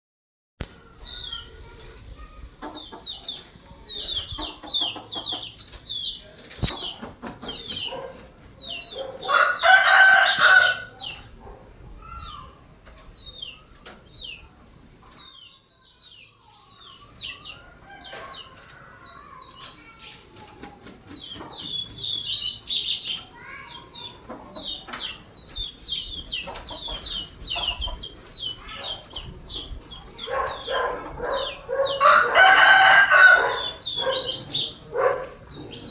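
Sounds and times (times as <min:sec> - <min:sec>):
rooster crowing: 0:09.2 - 0:11.0, 0:30.6 - 0:34.4.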